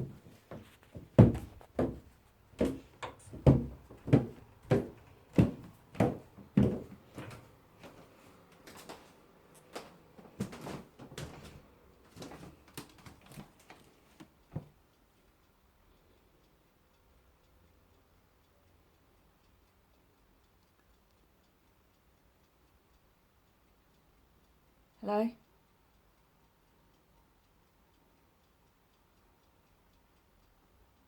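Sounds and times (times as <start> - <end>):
heavy footsteps: 0.0 - 13.5.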